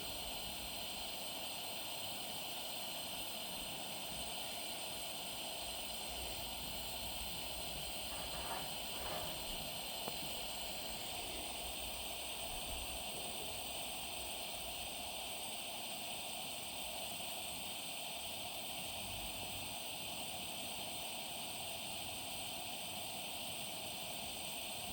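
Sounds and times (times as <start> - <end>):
lanterns hissing: 0.0 - 16.7.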